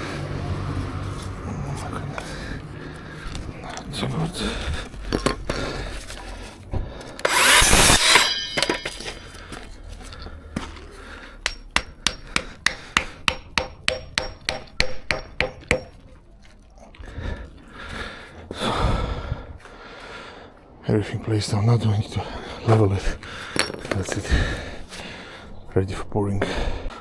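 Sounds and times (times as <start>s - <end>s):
tool scraping timber: 5.1s - 9.8s.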